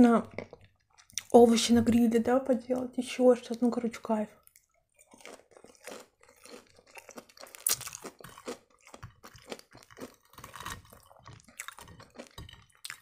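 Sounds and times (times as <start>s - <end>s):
person chewing crunchy food: 0.1s - 1.5s, 4.4s - 13.0s.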